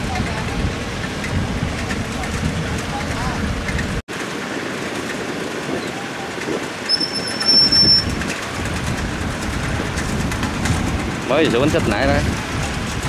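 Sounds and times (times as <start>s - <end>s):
combine harvester running: 0.0s - 13.0s
high-pitched squeal: 6.8s - 8.3s.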